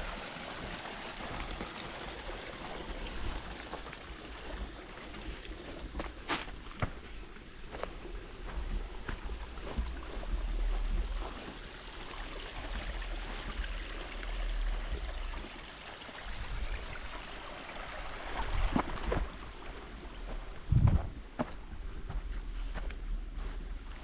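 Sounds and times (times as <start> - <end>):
wind rumbling on microphone: 18.3 - 24.0.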